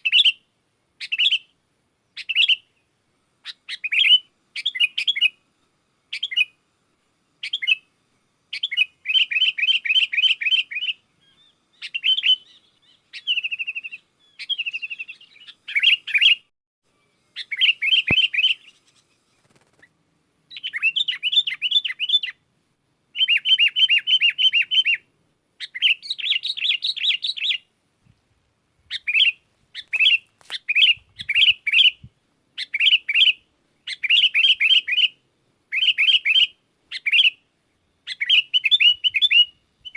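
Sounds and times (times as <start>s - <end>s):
bird chattering: 8.5s - 16.5s, 17.4s - 19.9s, 20.5s - 22.4s, 25.6s - 27.7s, 28.9s - 32.0s, 32.6s - 37.4s.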